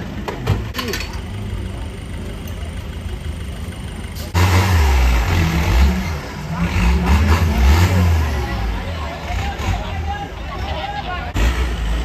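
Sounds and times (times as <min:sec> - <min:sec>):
engine idling rumble: 0:00.0 - 0:12.0
loud engine revving under load: 0:04.2 - 0:10.1, 0:11.3 - 0:12.0.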